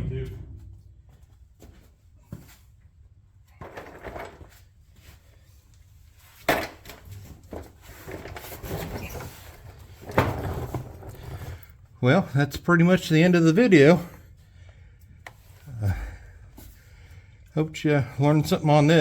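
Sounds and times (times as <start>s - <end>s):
rustling and clattering: 0.0s - 11.8s.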